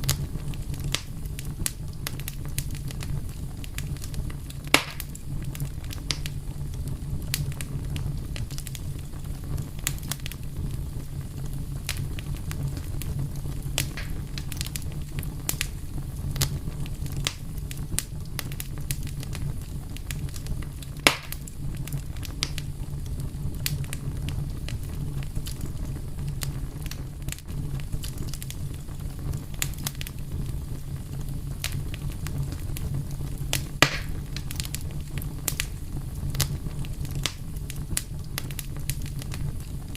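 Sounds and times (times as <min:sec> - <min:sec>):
fire crackling: 0:00.0 - 0:39.9
low rumble of flames: 0:00.0 - 0:39.9
sharp fire pop: 0:04.7 - 0:05.2, 0:13.8 - 0:14.7, 0:21.0 - 0:21.5, 0:33.5 - 0:34.8.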